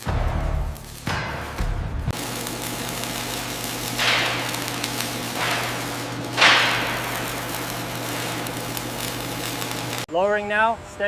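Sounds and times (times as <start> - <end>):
low machine hum: 1.5 - 10.1
sudden hissing bursts: 2.2 - 10.1.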